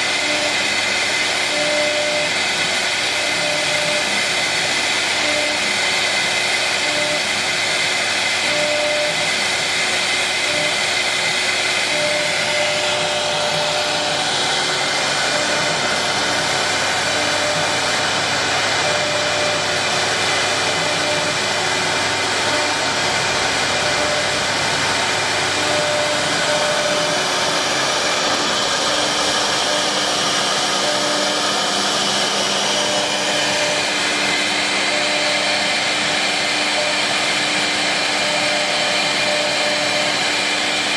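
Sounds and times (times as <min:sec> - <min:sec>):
cnc router carving wood: 0:00.0 - 0:40.9
short machine tones: 0:08.3 - 0:09.3, 0:10.4 - 0:40.2.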